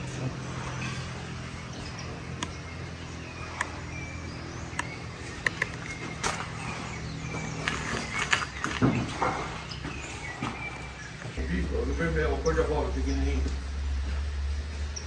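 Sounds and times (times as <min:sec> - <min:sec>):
steady low hum: 0:00.0 - 0:15.0
sharp clicks: 0:04.7 - 0:06.4.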